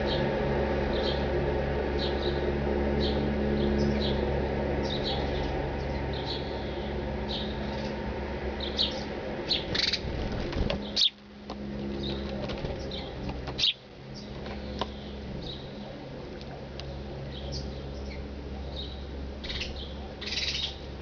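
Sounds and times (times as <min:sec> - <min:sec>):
steady low hum: 0:00.0 - 0:21.0
birds chirping in high calls: 0:08.6 - 0:10.1, 0:10.8 - 0:11.2, 0:12.8 - 0:15.8, 0:17.3 - 0:20.8.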